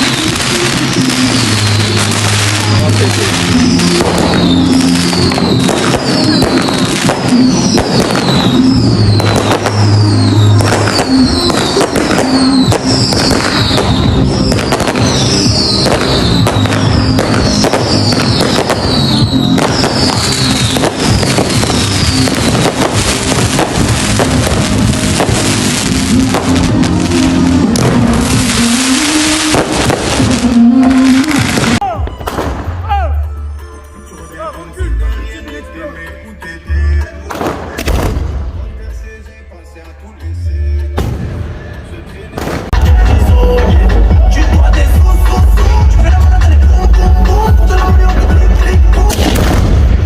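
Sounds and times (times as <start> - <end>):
fireworks banging and crackling: 0.0 - 32.8, 37.3 - 38.9, 41.0 - 50.0
fireworks whistles: 0.0 - 32.9
music with stepping bass line: 10.6 - 33.8, 42.7 - 49.7.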